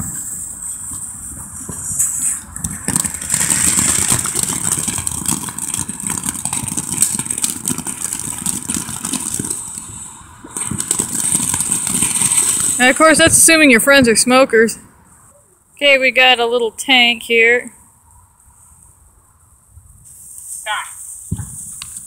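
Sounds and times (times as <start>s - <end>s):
firework hissing and crackling: 0.0s - 15.3s, 19.8s - 22.0s.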